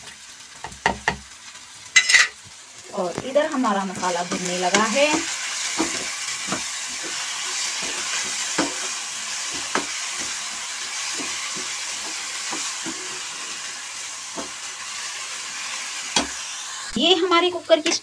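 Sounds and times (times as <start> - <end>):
food sizzling in oil: 0.0 - 18.0
metal spoon scraping a pan: 2.0 - 2.4.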